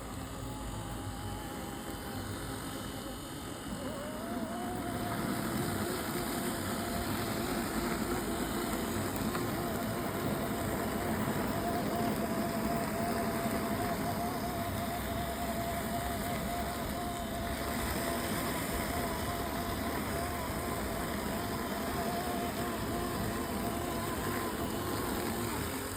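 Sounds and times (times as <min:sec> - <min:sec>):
robotic lawn mower motor whine: 0:00.0 - 0:25.9.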